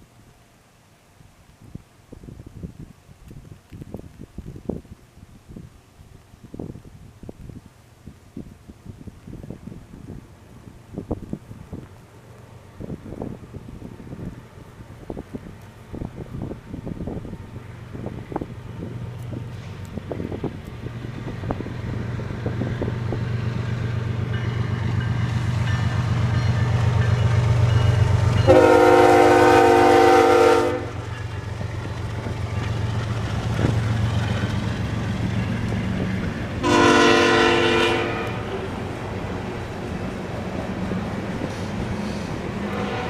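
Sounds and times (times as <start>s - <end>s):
diesel locomotive engines rumbling: 7.7s - 43.0s
locomotive air horn blasts: 28.4s - 31.1s, 36.6s - 38.7s, 42.6s - 43.0s.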